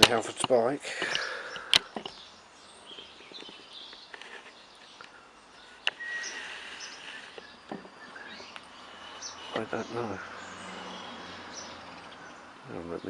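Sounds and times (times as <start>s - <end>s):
sharp click: 0.0s - 2.2s
birds chirping: 0.0s - 13.0s.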